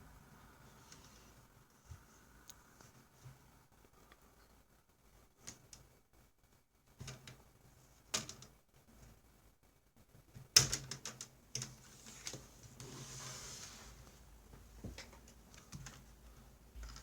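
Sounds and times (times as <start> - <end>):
soft scraping rustle: 11.8 - 15.1.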